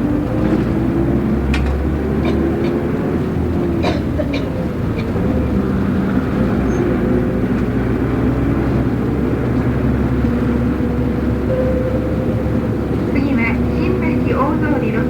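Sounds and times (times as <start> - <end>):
bus diesel engine drone: 0.0 - 15.0
road noise: 0.0 - 15.0.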